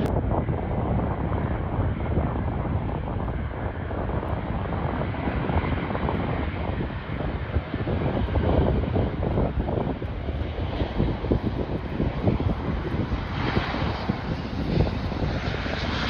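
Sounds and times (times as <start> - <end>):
airliner engines running: 0.0 - 16.0
wind on microphone: 0.0 - 16.0.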